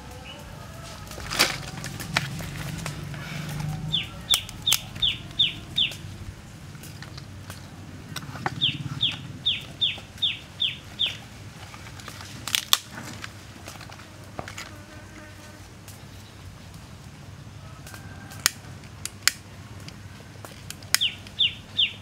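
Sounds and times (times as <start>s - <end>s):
bird calling high falling notes: 0.0s - 6.8s, 8.4s - 11.3s
dry sticks clattering: 0.0s - 14.8s, 17.8s - 21.5s.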